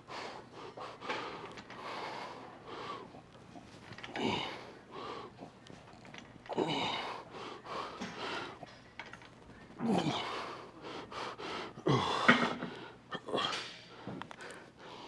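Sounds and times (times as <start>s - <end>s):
man breathing hard: 0.0s - 3.2s, 10.1s - 13.0s.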